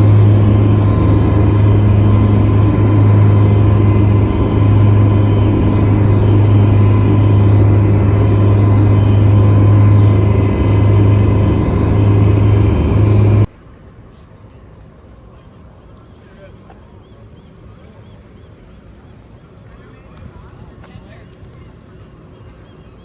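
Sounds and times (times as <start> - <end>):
boat engine humming: 0.0 - 13.5.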